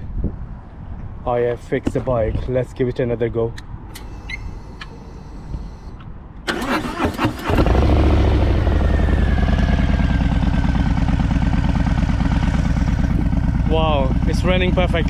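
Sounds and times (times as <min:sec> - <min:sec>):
starter cranking engine: 0:06.5 - 0:08.8
motorcycle engine idling: 0:07.6 - 0:15.0.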